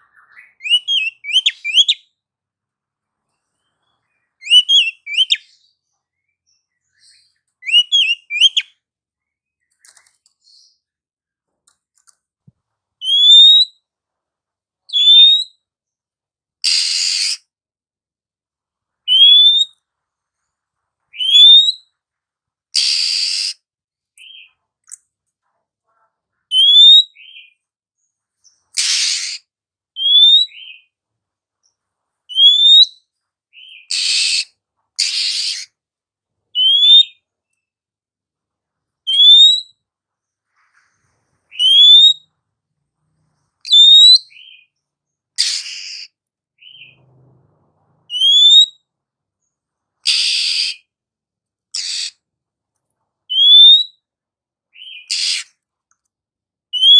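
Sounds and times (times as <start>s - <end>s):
bird harsh rasping call: 16.6s - 17.4s, 22.8s - 23.6s, 28.8s - 30.9s, 33.6s - 35.7s, 45.4s - 47.0s, 50.0s - 50.9s, 51.7s - 52.2s, 54.8s - 55.6s
bird rising whistles: 22.8s - 23.6s, 48.1s - 48.7s.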